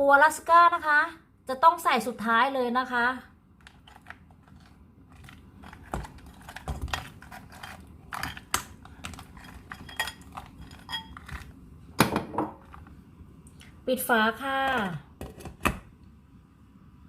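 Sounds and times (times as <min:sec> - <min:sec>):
crab shells clattering against pot: 0:03.6 - 0:12.8.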